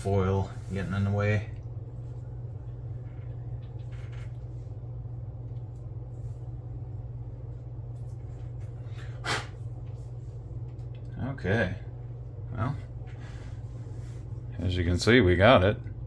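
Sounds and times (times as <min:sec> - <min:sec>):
steady low hum: 0:00.0 - 0:16.0
short sharp hiss: 0:09.1 - 0:09.6.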